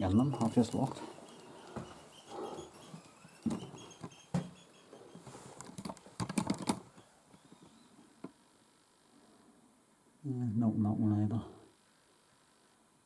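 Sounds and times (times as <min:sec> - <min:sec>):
faint bird chirps: 0:00.0 - 0:05.6, 0:06.9 - 0:08.2
handling clicks and knocks: 0:05.5 - 0:08.4.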